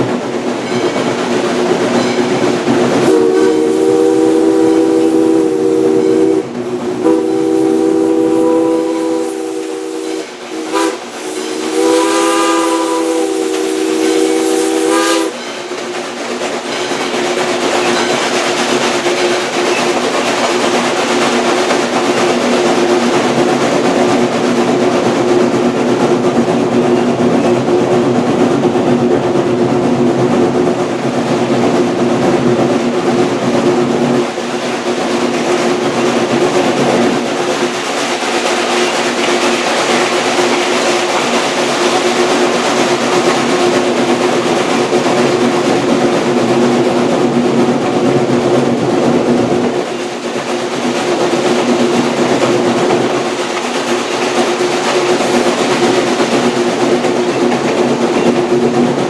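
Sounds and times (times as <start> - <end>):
moving steam train running: 0.0 - 59.0
steam whistle chord: 3.0 - 15.4.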